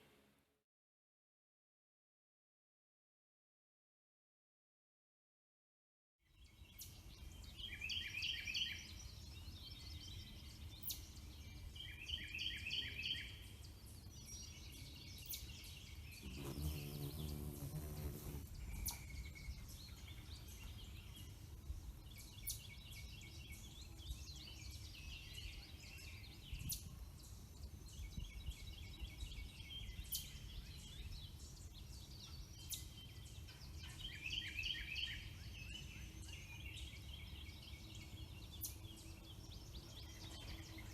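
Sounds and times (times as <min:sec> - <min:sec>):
songbirds singing: 0:06.3 - 0:40.9.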